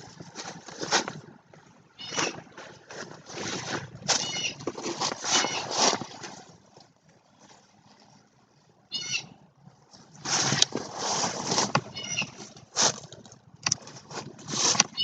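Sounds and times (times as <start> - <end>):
bird calling: 1.9 - 2.4, 4.1 - 4.7, 8.9 - 9.4, 11.8 - 12.5.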